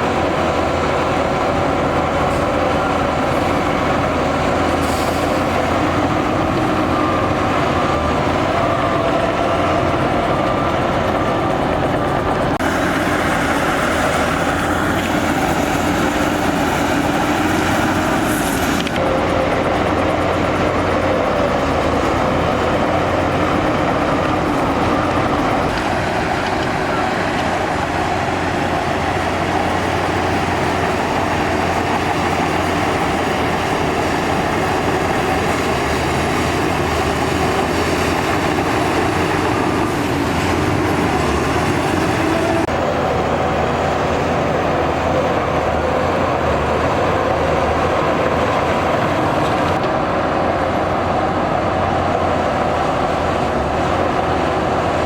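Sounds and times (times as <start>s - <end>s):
heavy diesel engines droning: 0.0s - 55.0s.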